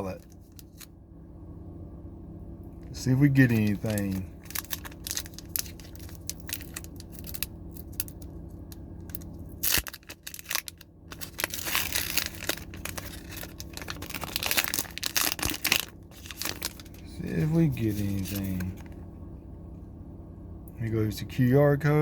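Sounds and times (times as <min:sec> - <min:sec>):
foil wrapper crinkling: 0:00.0 - 0:00.9, 0:02.9 - 0:19.0.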